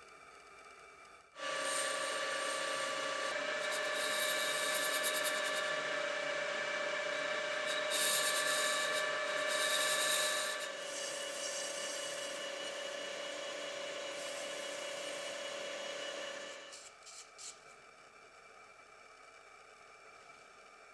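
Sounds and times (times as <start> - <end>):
milling spindle whine: 1.4 - 16.7
harsh cutting hiss: 7.2 - 10.8.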